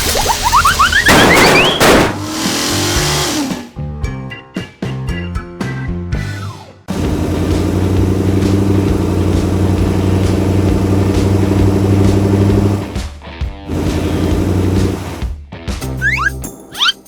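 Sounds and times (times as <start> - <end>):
vehicle engine humming: 6.9 - 13.0, 13.7 - 15.3.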